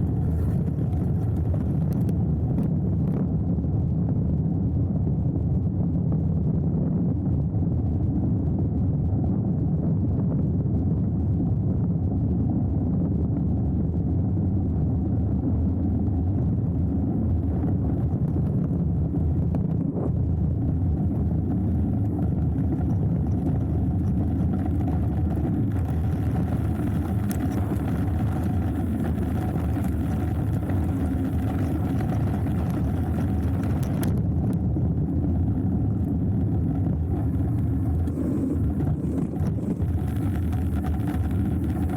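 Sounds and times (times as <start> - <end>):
wind on microphone: 0.0 - 41.9
tyres rolling over dirt: 36.4 - 41.9.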